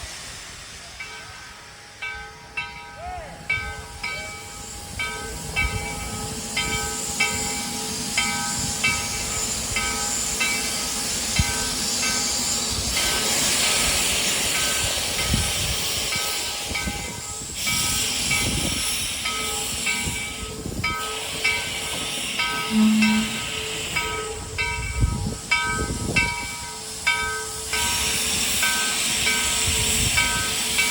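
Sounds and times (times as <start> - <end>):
steam hissing: 0.0 - 30.9
locomotive bell ringing: 19.2 - 30.9
loud low whistle tone: 22.6 - 24.3.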